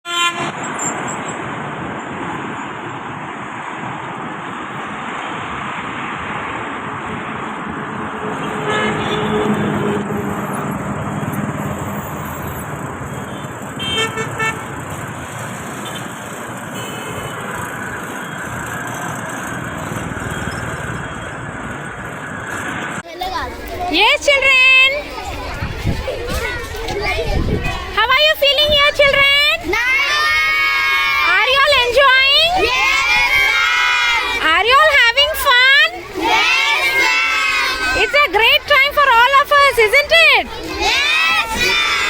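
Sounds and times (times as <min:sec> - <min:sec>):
vehicle horns honking: 0:00.1 - 0:01.0, 0:08.0 - 0:10.8, 0:13.2 - 0:14.9, 0:15.8 - 0:17.7
road traffic rumble: 0:00.1 - 0:42.0.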